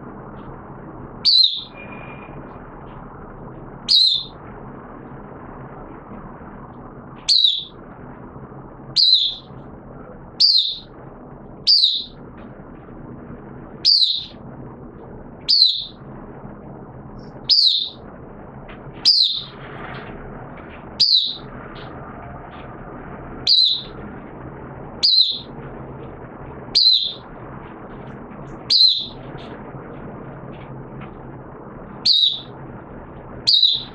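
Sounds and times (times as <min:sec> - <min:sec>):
low background hum: 0:00.0 - 0:33.9
songbird chirping: 0:01.2 - 0:02.2, 0:03.8 - 0:04.4, 0:07.2 - 0:07.8, 0:09.0 - 0:09.5, 0:10.4 - 0:11.0, 0:11.6 - 0:12.2, 0:13.8 - 0:14.4, 0:15.4 - 0:16.0, 0:17.3 - 0:18.0, 0:19.0 - 0:19.5, 0:21.0 - 0:21.9, 0:23.4 - 0:24.0, 0:25.0 - 0:25.6, 0:26.7 - 0:27.3, 0:28.6 - 0:29.2, 0:32.0 - 0:32.5, 0:33.5 - 0:33.9.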